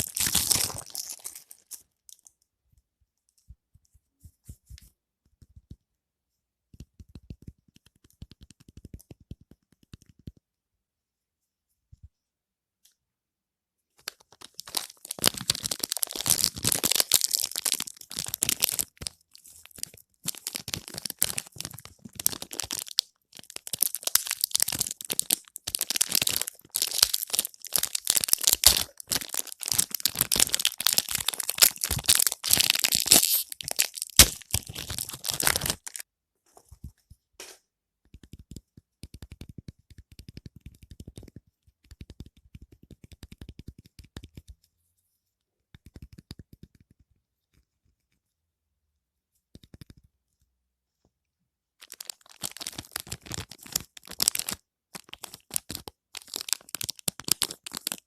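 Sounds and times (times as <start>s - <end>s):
wrapper crinkling and tearing: 0.0s - 2.3s, 14.0s - 36.0s, 51.8s - 58.0s.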